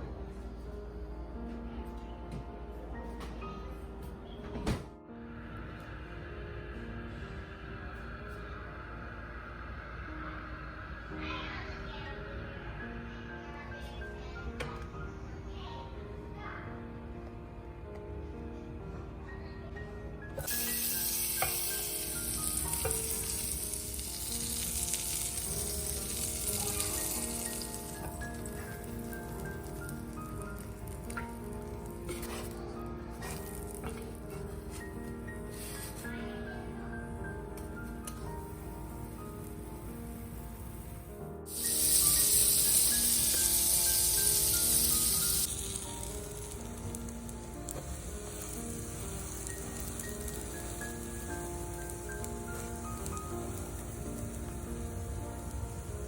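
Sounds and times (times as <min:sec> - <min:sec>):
soft background music: 0:00.0 - 0:56.0
food sizzling in a pan: 0:20.4 - 0:36.5, 0:37.8 - 0:56.0.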